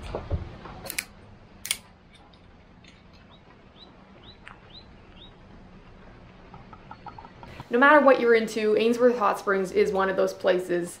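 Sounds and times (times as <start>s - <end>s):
bird chirping faintly: 3.2s - 5.5s.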